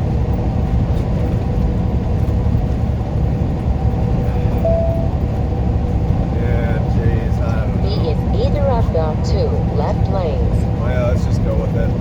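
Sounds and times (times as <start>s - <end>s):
truck engine and road rumble: 0.0s - 12.0s
short beep: 4.6s - 5.2s.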